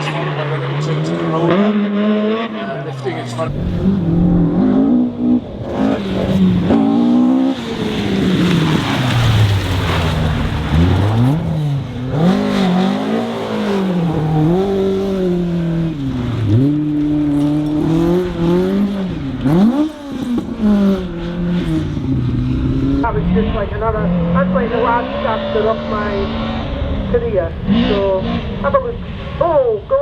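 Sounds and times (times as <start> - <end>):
rally car engine revving: 0.0 - 30.0
rush of noise: 3.4 - 11.4.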